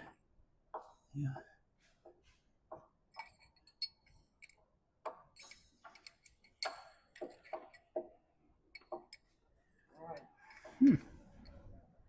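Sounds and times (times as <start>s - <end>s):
metal tools clicking and clinking: 3.1s - 4.6s, 5.3s - 8.0s, 8.7s - 9.4s.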